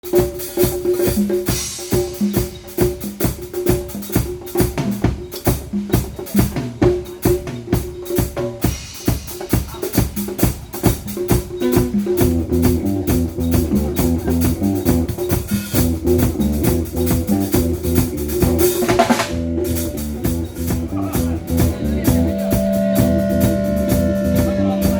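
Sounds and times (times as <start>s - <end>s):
drum kit beat: 0.0s - 24.9s
live band music: 0.0s - 24.9s
low bass notes: 11.6s - 24.9s
repeating pitched riff: 11.6s - 24.9s.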